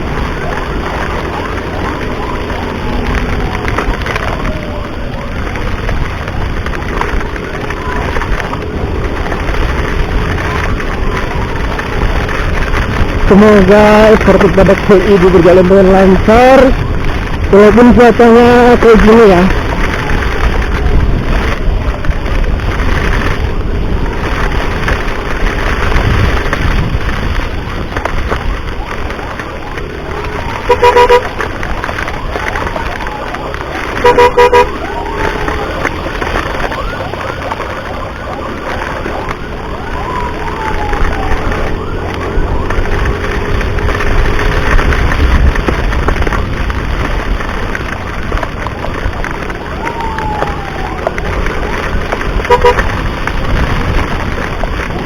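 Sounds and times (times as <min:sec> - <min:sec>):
ambulance siren: 0:00.0 - 0:55.0
wind and road noise: 0:00.0 - 0:55.0
scooter engine running: 0:18.5 - 0:55.0.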